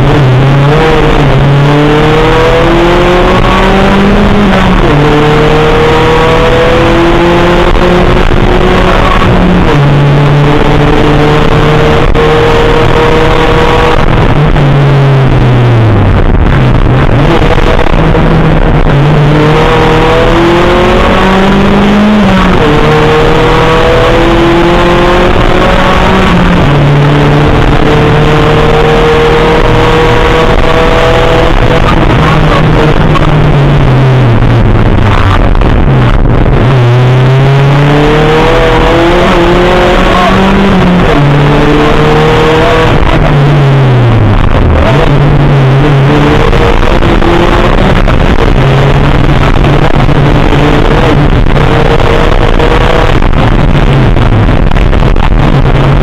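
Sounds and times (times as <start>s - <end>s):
race car engine revving through gears: 0.0s - 56.0s.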